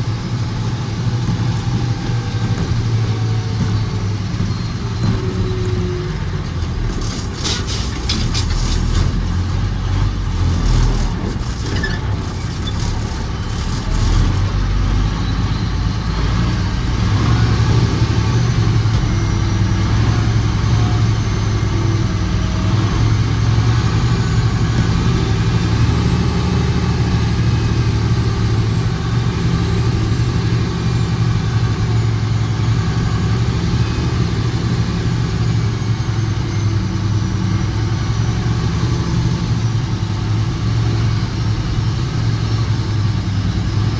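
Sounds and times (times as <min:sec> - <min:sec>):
truck engine running: 0:00.0 - 0:43.9.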